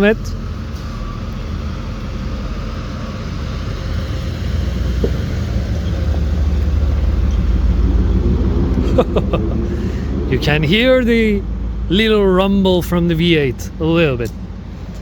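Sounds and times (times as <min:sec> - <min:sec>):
low car engine rumble: 0:00.0 - 0:15.0.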